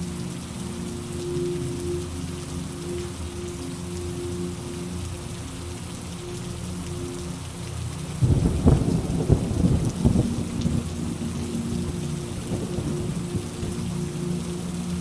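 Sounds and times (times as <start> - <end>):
steady rain: 0.0 - 15.0
thunder clap rumbling: 8.2 - 10.9.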